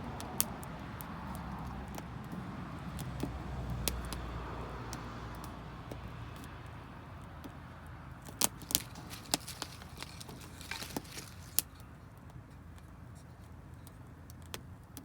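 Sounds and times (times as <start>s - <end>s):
low steady fire rumble: 0.0s - 15.0s
wood fire crackling and popping: 0.0s - 15.0s.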